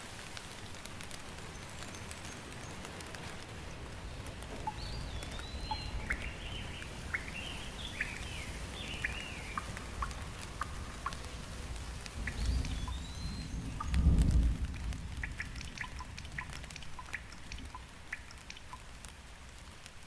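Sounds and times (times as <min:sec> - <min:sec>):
steady rain: 0:00.0 - 0:20.0
bird chirps and swooping calls: 0:04.7 - 0:11.2, 0:12.2 - 0:14.0.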